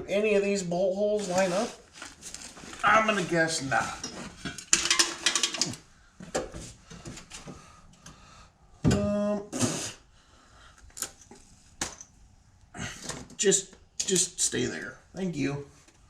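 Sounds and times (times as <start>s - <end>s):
metal hardware clinking and rattling: 4.0s - 5.8s.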